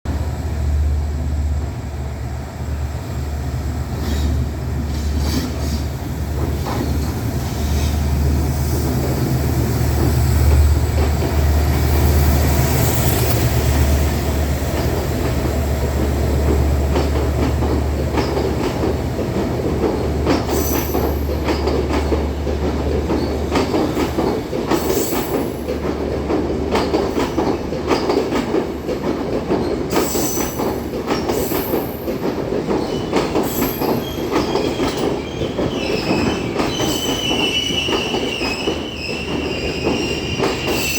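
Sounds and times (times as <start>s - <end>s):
diesel locomotive engine drone: 0.1s - 23.7s
train wheels clattering over rail joints: 3.9s - 40.9s
high wheel squeals: 32.8s - 40.9s.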